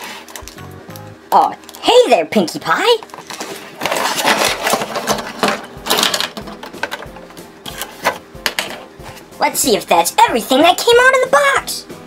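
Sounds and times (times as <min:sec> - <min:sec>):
packaging rustling and crinkling: 0:03.1 - 0:06.4.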